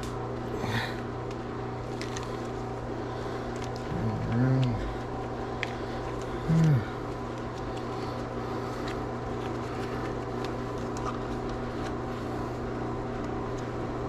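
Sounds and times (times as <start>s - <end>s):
mechanical hum: 0.0s - 14.0s
person humming: 3.8s - 5.1s, 6.4s - 7.0s.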